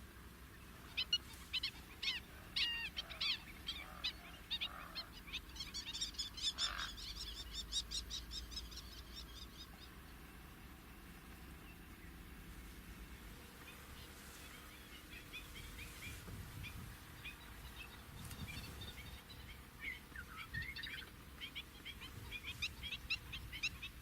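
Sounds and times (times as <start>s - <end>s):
bird singing sharp varied notes: 11.4s - 24.0s.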